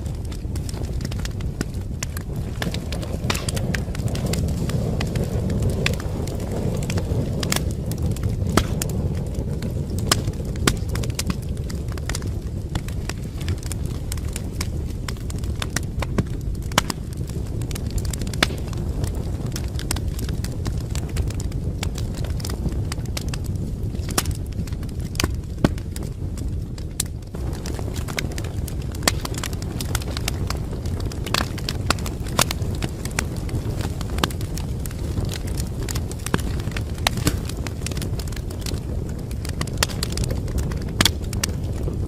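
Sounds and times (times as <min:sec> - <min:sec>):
fireplace fire crackling: 0:00.0 - 0:42.0.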